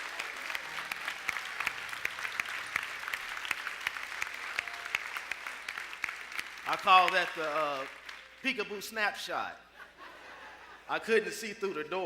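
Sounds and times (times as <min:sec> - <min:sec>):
congregation applauding: 0:00.0 - 0:08.9.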